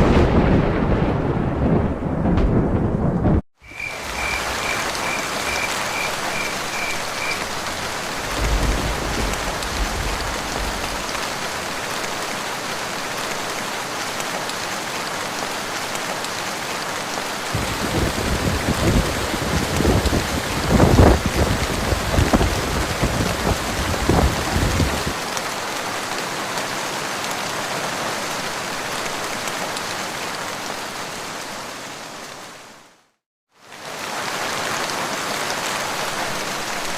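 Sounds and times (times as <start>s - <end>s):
rolling thunder: 0.0s - 6.3s, 7.0s - 12.0s, 17.5s - 25.2s
steady rain: 0.0s - 36.9s
repeated high calls: 3.6s - 7.6s.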